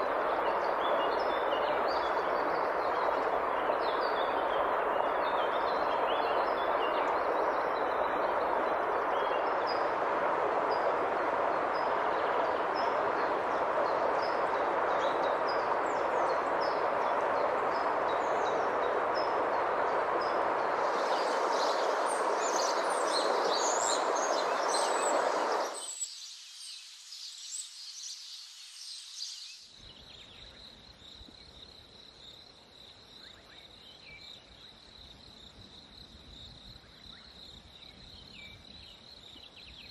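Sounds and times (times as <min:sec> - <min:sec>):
songbirds chirping: 0:00.0 - 0:31.7.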